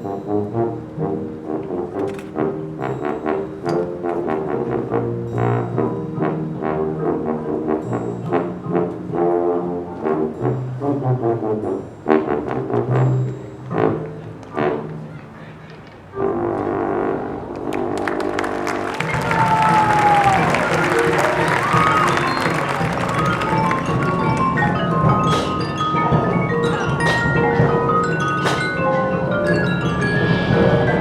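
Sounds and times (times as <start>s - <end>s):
marching band brass chords: 0.0s - 31.0s
sharp percussion hits: 20.0s - 29.2s.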